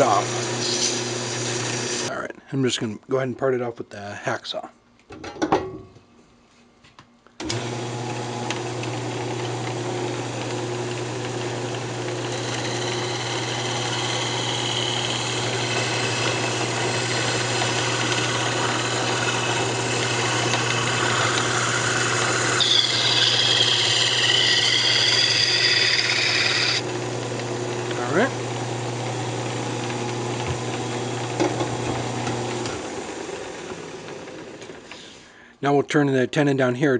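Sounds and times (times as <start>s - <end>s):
wood lathe motor hum: 0.0s - 2.1s, 7.4s - 35.1s
hacksaw rasping on spinning wood: 12.2s - 26.8s.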